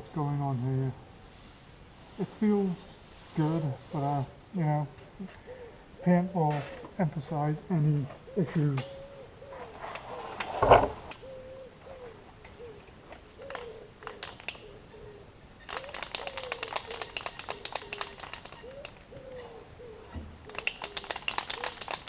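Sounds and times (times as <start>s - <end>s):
bird cooing: 5.2s - 7.4s, 8.0s - 10.4s, 11.1s - 22.0s
clatter of clicks: 20.5s - 22.0s.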